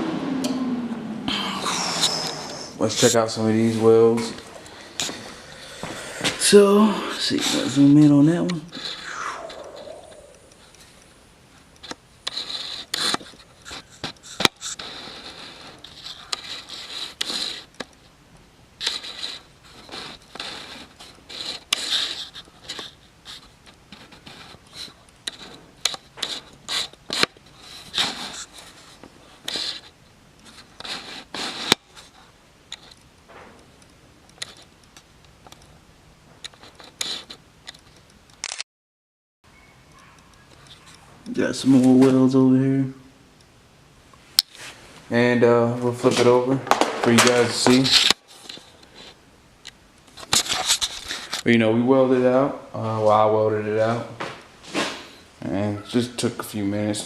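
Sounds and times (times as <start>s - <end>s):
sharp clicks: 36.4s - 38.6s.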